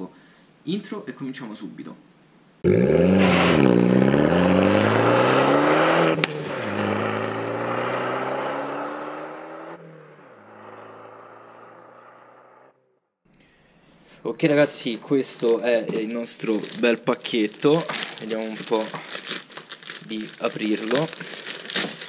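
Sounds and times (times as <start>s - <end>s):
exhaust crack: 2.6s - 13.0s, 15.4s - 22.0s
car engine accelerating: 2.6s - 13.1s.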